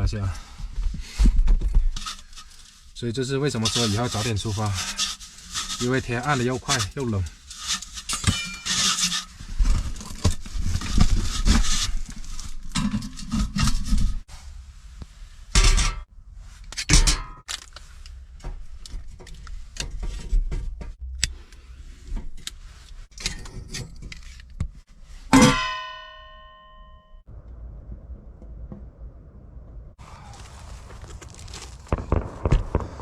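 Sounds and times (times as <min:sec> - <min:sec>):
metal things clattering: 0:23.1 - 0:24.6
metal object ringing: 0:25.3 - 0:27.2.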